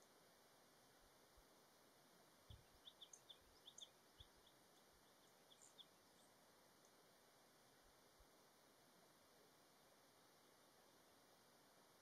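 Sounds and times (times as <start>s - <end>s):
small bird chirping: 2.5s - 6.4s.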